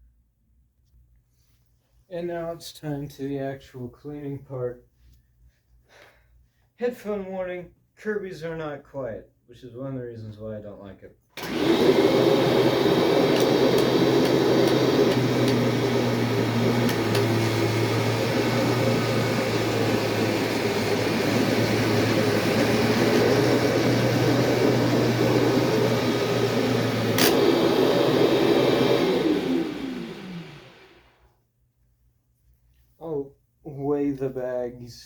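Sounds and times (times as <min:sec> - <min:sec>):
motor winding down: 0:11.4 - 0:31.1
vacuum cleaner running: 0:11.4 - 0:31.2.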